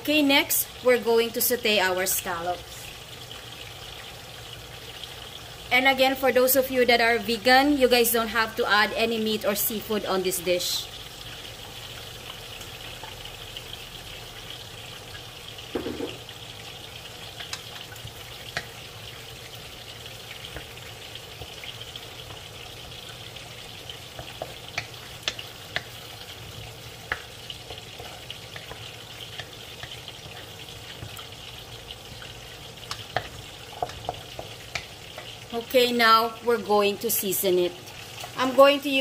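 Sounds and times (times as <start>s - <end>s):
food sizzling in a wok: 0.0s - 39.0s
dull knock: 15.8s - 16.2s.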